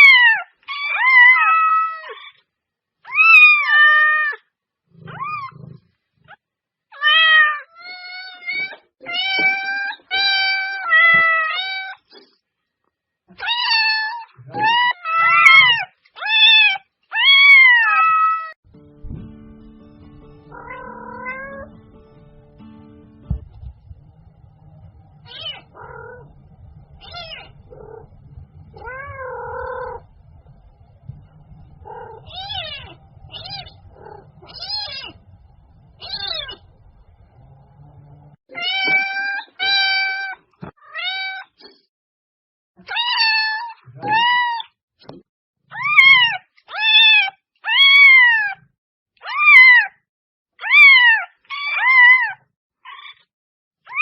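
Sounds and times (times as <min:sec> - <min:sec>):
cat meowing: 0:00.0 - 0:02.4, 0:07.0 - 0:12.1, 0:13.4 - 0:18.6, 0:20.5 - 0:21.8, 0:25.2 - 0:26.3, 0:27.0 - 0:30.1, 0:31.3 - 0:35.2, 0:36.0 - 0:36.6, 0:38.5 - 0:41.6, 0:42.8 - 0:44.7, 0:45.7 - 0:48.6, 0:50.6 - 0:53.2
low hum: 0:18.7 - 0:38.4.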